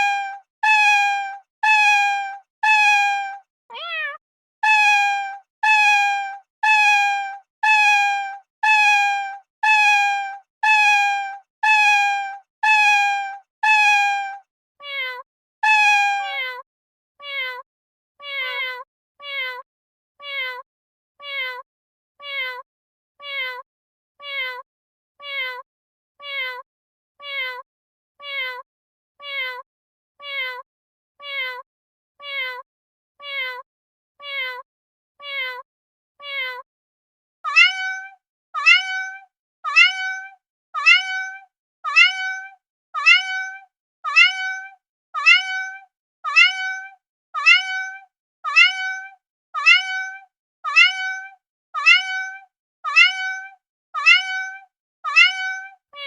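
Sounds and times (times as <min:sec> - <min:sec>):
cat meowing: 0:00.0 - 0:14.2, 0:14.8 - 0:16.6, 0:17.2 - 0:17.6, 0:18.2 - 0:19.6, 0:20.2 - 0:20.6, 0:21.2 - 0:21.6, 0:22.2 - 0:22.6, 0:23.2 - 0:23.6, 0:24.2 - 0:24.6, 0:25.2 - 0:25.6, 0:26.2 - 0:26.6, 0:27.2 - 0:27.6, 0:32.2 - 0:32.6, 0:33.2 - 0:33.6, 0:34.2 - 0:34.6, 0:35.2 - 0:35.6, 0:36.2 - 0:36.6, 0:37.5 - 0:56.0.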